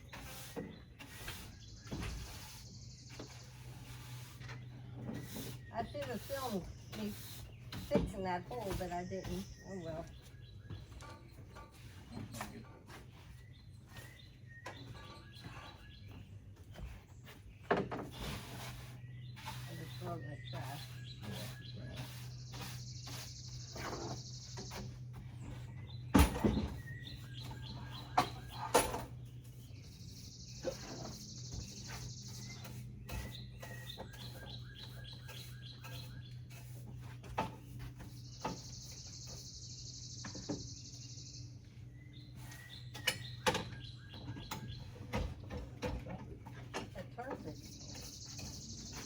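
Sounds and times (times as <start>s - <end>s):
knocks and clatter of handling: 43.0s - 47.5s.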